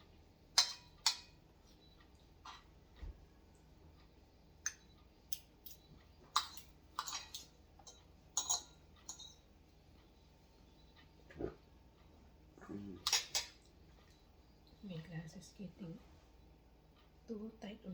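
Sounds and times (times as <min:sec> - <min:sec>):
utensils clinking against bowls: 0:00.6 - 0:01.3, 0:06.4 - 0:09.5, 0:13.1 - 0:13.7.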